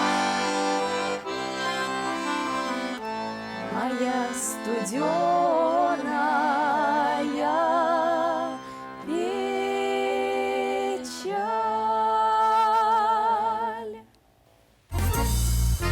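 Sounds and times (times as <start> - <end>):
female vocal trio singing: 3.6 - 14.1.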